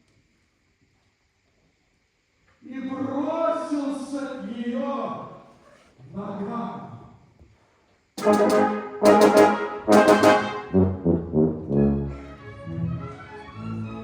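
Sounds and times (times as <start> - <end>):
loud short brass chords: 8.2 - 12.4
lower stepping notes: 8.2 - 13.1
sustained strings: 8.2 - 14.0.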